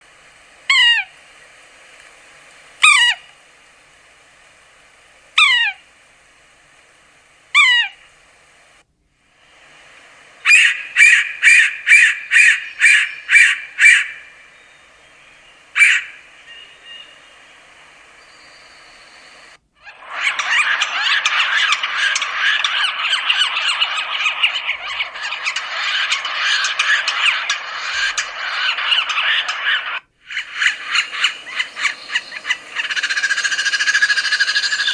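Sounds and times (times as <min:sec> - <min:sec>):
bird mewing calls: 0:07.6 - 0:08.0, 0:10.2 - 0:34.9
squealing bird calls: 0:07.6 - 0:08.0, 0:10.4 - 0:34.9
short bird calls: 0:07.6 - 0:08.1, 0:10.3 - 0:34.9.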